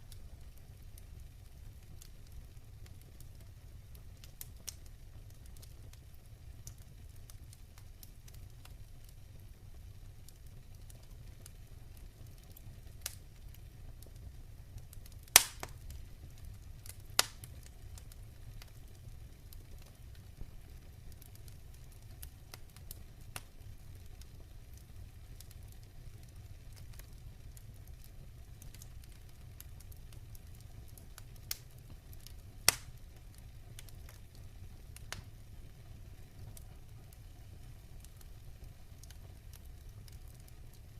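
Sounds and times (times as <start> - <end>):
fire crackling: 0.0 - 40.9
fire rumbling: 0.0 - 40.9
loud sharp pops: 15.3 - 15.8, 32.7 - 32.9.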